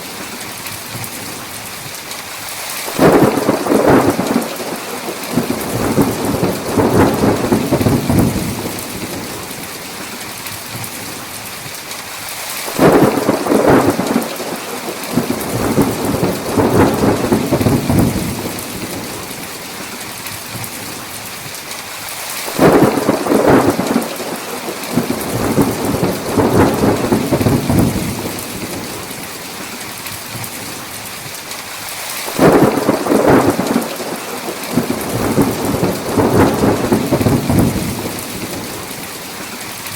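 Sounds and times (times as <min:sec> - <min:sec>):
heavy rain: 0:00.0 - 0:39.9
thunder rumbling: 0:02.9 - 0:09.8, 0:12.7 - 0:19.6, 0:22.5 - 0:29.4, 0:32.3 - 0:39.3.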